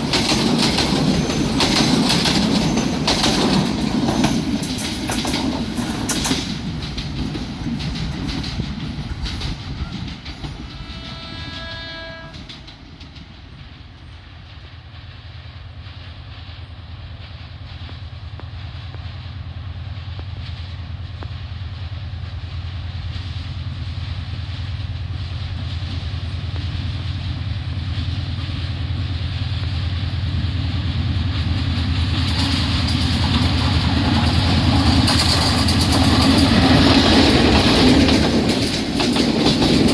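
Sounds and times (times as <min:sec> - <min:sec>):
diesel locomotive engine drone: 0:00.0 - 0:39.9
train rolling past: 0:00.0 - 0:39.9
distant train horn: 0:09.8 - 0:12.7.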